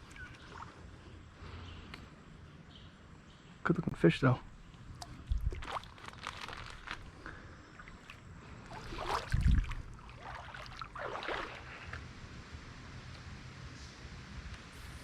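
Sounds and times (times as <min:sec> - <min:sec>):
creek water sloshing: 0:04.9 - 0:12.1
steady low rumble: 0:07.0 - 0:15.0.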